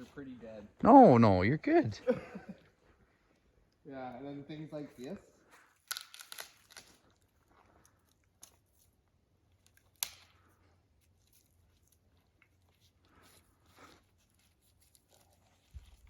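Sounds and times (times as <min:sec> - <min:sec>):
dry twigs crackling: 0:05.9 - 0:07.0
twig snapping: 0:05.9 - 0:07.0, 0:09.6 - 0:10.4.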